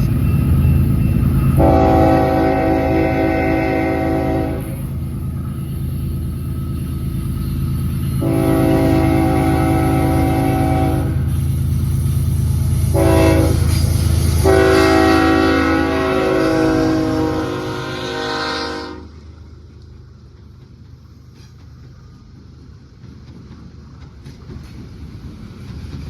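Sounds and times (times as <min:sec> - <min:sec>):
diesel locomotive engine rumble: 0:00.0 - 0:26.0
locomotive air horn blasts: 0:01.5 - 0:05.1, 0:08.2 - 0:11.5, 0:12.8 - 0:19.2.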